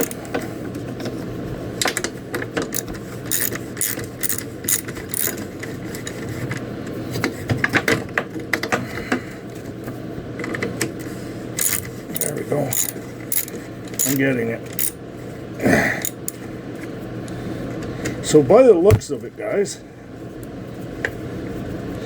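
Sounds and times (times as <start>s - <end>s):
ratchet wrench clicking: 0.0s - 0.2s, 2.7s - 5.4s, 11.6s - 14.2s, 14.8s - 15.0s.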